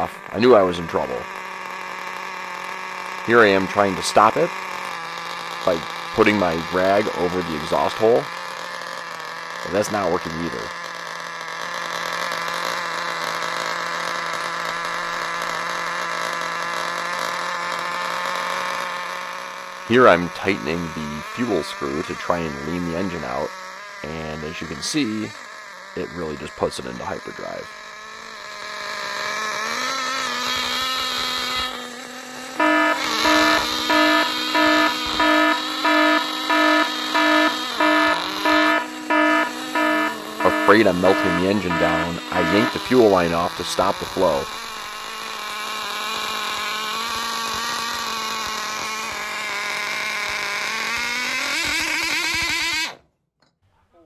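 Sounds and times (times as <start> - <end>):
nitro engine high-pitched buzz: 0.0 - 53.0
pulsing fixed-pitch tone: 32.6 - 45.3.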